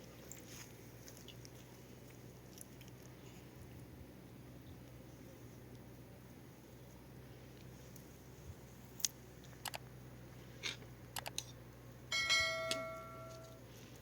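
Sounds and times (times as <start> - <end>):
metal object struck ringing: 12.1 - 13.6.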